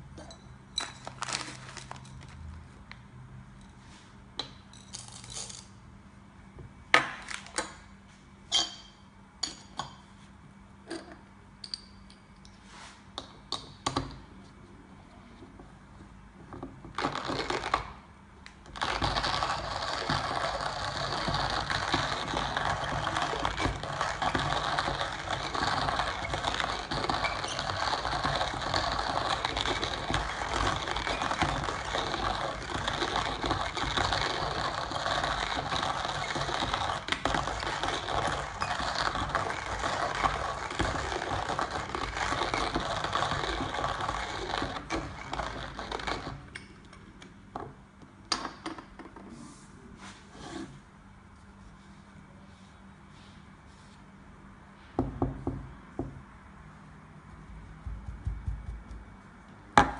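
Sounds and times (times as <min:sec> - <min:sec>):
coffee grinder grinding: 0:01.0 - 0:02.5, 0:16.9 - 0:17.9, 0:18.7 - 0:46.5.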